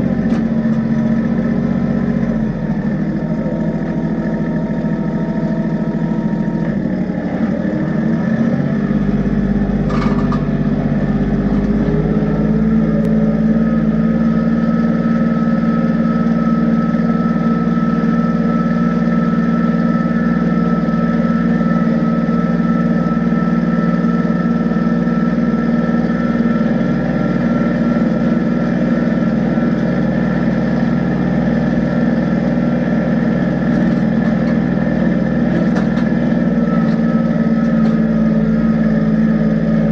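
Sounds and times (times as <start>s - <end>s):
tractor diesel engine running: 0.0s - 39.9s
metal clank: 9.8s - 10.7s.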